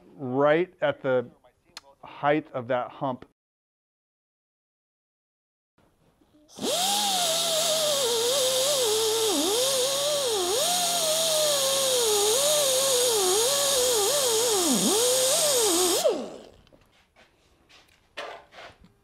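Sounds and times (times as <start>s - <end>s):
grinder whining on steel: 6.5s - 16.7s.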